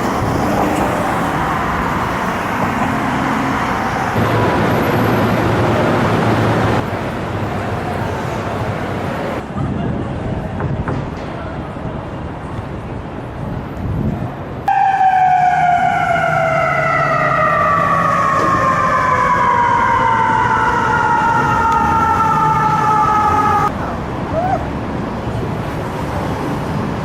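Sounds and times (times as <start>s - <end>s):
street traffic noise: 0.0s - 27.0s
emergency vehicle siren wailing: 14.7s - 23.7s.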